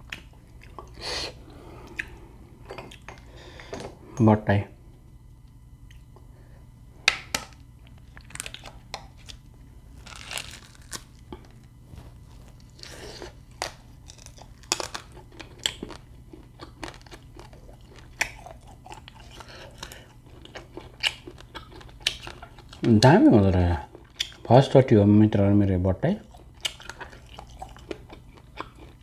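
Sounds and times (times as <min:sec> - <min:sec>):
person chewing: 0:00.0 - 0:03.3, 0:07.8 - 0:22.9, 0:23.8 - 0:24.5, 0:26.2 - 0:29.0.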